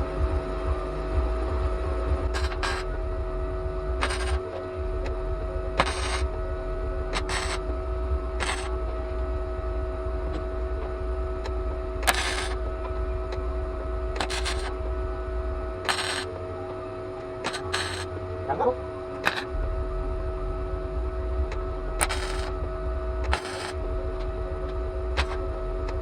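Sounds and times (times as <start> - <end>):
welder hum: 0.0 - 26.0
welder crackling bursts: 5.8 - 6.2, 8.4 - 8.7, 12.0 - 12.6, 14.2 - 14.7, 22.0 - 22.5, 23.2 - 23.8.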